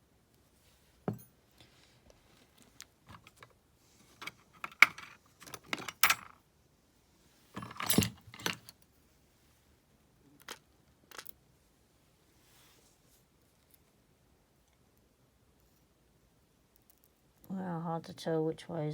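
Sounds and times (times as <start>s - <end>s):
small metal lock parts clicking: 4.2s - 6.4s, 7.6s - 8.8s, 10.4s - 11.4s.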